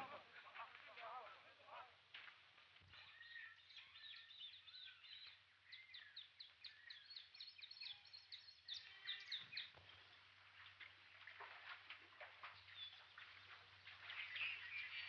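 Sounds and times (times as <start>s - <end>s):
jungle bird calls: 2.9s - 11.6s, 12.2s - 15.0s.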